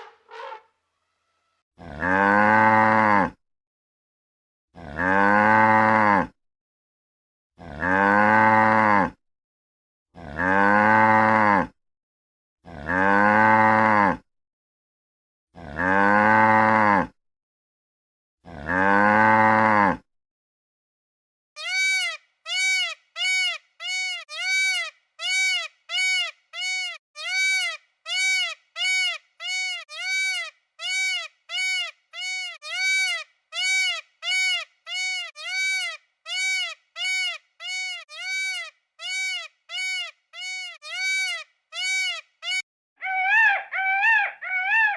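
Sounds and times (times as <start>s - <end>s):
cow mooing: 1.8s - 3.4s, 4.8s - 6.3s, 7.6s - 9.2s, 10.2s - 11.7s, 15.6s - 17.1s, 18.5s - 20.0s
short high-pitched bleats: 21.6s - 42.6s.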